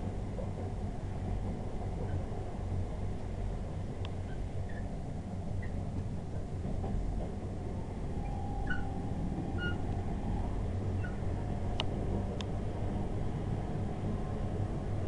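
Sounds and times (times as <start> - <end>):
train wheels rumbling on track: 0.0 - 15.0
faint high squeaks: 4.2 - 4.9, 8.1 - 11.2
faint whine: 7.1 - 14.4.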